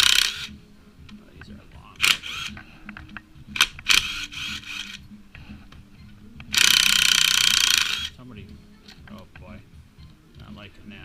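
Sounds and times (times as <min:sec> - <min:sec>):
socket ratchet clicking: 0:00.0 - 0:00.5, 0:02.0 - 0:05.0, 0:06.4 - 0:08.1.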